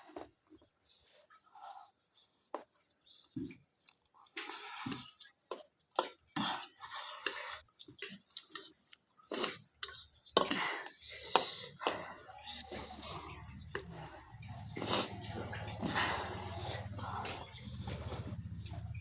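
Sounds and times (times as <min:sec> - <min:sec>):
chewing: 0:03.1 - 0:19.0
person slurping noodles: 0:04.2 - 0:05.3, 0:06.4 - 0:15.3.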